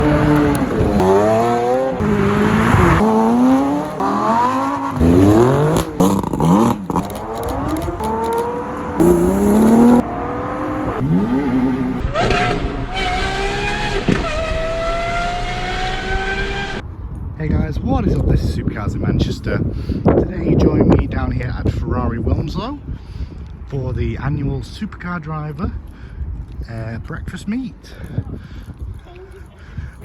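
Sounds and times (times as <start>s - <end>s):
car engines revving and accelerating: 0.0s - 16.8s.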